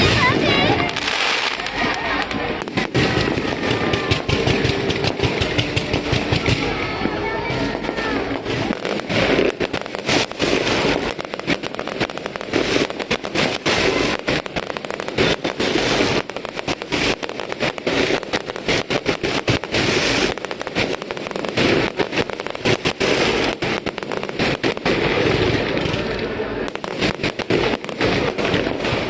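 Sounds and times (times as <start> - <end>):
fireworks bursting and crackling: 0.0 - 29.0.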